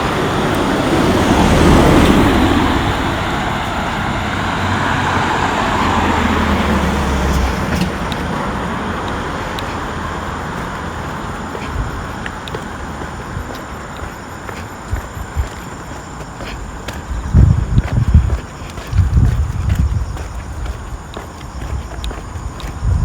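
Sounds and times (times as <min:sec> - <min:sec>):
motor vehicle passing by: 0:00.0 - 0:15.7.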